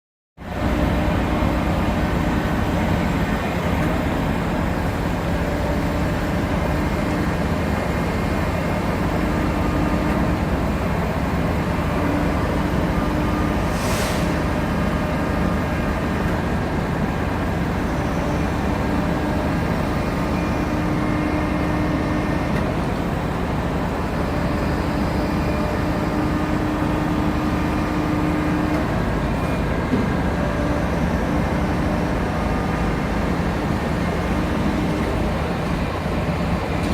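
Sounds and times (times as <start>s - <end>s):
heavy vehicle engine running: 0.4s - 36.9s
air hiss: 13.6s - 14.5s.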